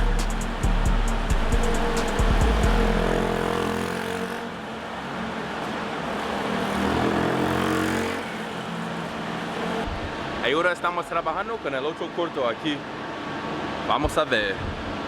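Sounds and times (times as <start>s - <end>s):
motorcycle engine revving: 0.0s - 4.6s, 6.5s - 8.4s.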